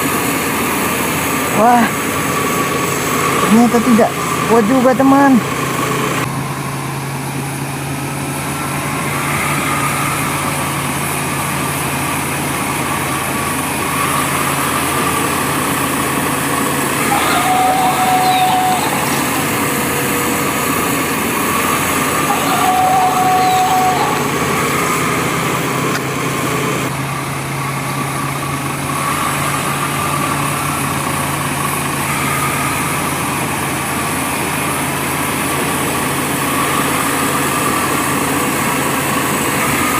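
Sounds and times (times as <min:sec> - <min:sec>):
short steady tones: 0:16.9 - 0:25.0.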